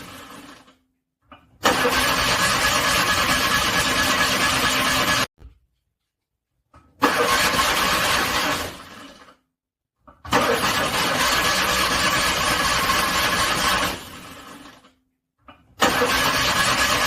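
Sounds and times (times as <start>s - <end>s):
car engine cranking: 1.6s - 5.2s, 7.0s - 9.0s, 10.3s - 14.4s, 15.8s - 17.0s.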